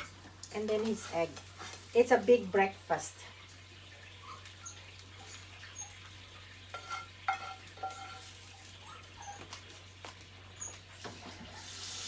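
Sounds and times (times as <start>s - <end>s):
metal spatula scraping a pan: 0.0s - 2.0s, 6.6s - 8.5s.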